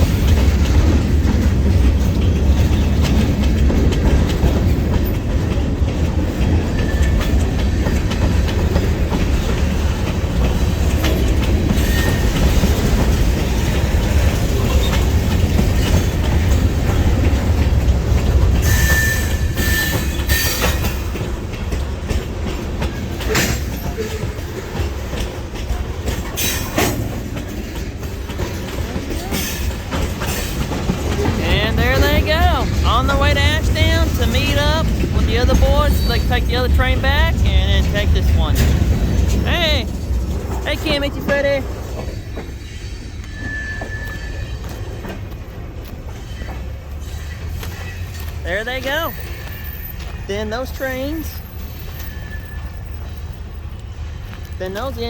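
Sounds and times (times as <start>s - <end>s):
train rumbling past: 0.0s - 55.0s
wheels clacking over rail joints: 0.0s - 55.0s
wheel squeal: 11.2s - 12.6s, 18.6s - 20.9s, 42.1s - 45.0s, 49.1s - 50.2s, 51.3s - 53.2s.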